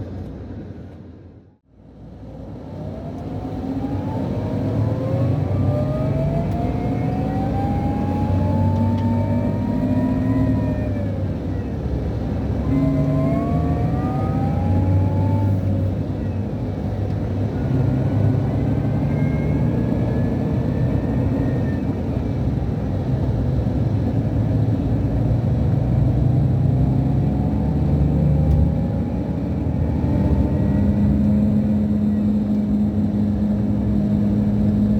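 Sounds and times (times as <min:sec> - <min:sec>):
diesel engine drone: 0:00.0 - 0:34.9
whistle and whine climbing: 0:02.8 - 0:23.2, 0:26.6 - 0:34.9.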